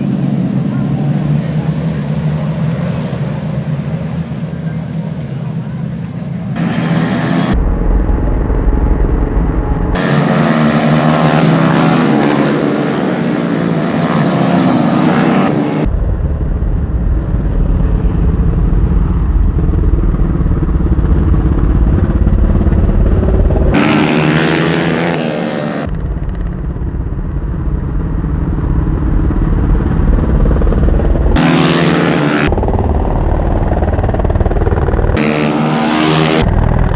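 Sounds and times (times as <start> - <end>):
racing motorcycles revving past: 6.6 - 7.6, 9.4 - 15.9, 21.1 - 26.0, 28.9 - 32.7, 34.5 - 36.5.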